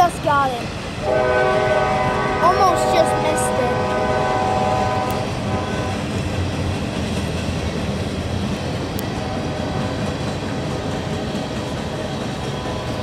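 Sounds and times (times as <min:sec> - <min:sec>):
freight train rumbling and clattering: 0:00.0 - 0:13.0
train horn: 0:01.0 - 0:06.1.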